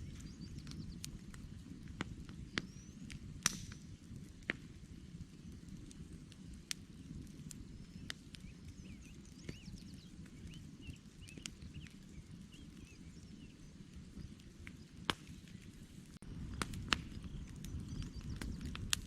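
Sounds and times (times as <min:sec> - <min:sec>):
campfire crackling and popping: 0:00.0 - 0:19.0
bird chirps: 0:08.0 - 0:14.8.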